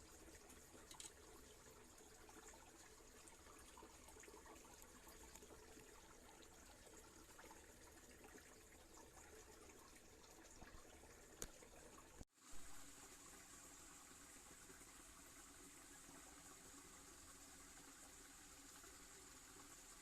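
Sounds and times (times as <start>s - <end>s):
stream water trickling: 0.0s - 20.0s
small ticks: 0.8s - 1.2s.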